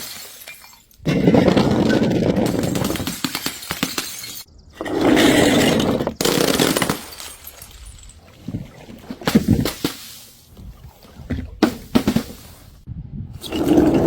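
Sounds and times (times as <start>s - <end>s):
glass breaking: 0.0s - 4.5s, 5.4s - 8.2s.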